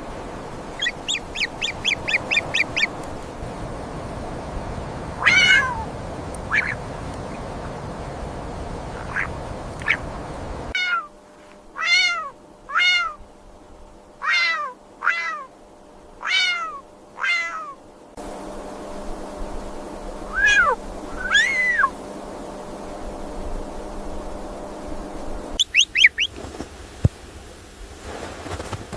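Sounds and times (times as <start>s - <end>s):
steady background hiss: 0.0s - 28.9s
animal meow-like calls: 5.2s - 5.9s, 10.8s - 11.1s, 11.8s - 13.2s, 14.2s - 15.5s, 16.2s - 17.8s, 20.3s - 22.0s.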